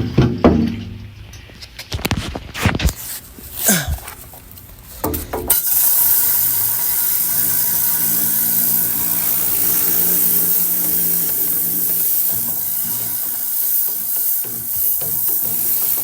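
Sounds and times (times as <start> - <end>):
handling knocks and clatters: 0.0 - 5.6
pressure washer spraying: 3.0 - 16.0.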